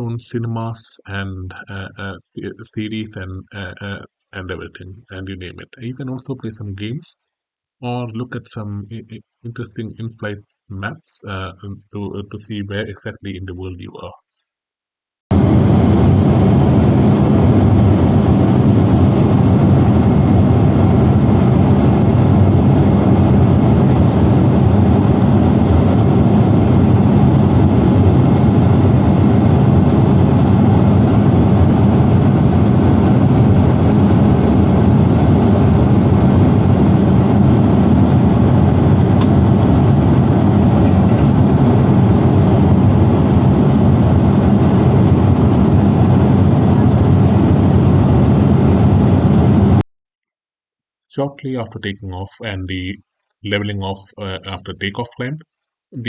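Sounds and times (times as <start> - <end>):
airliner cabin engine rush: 15.3 - 49.8.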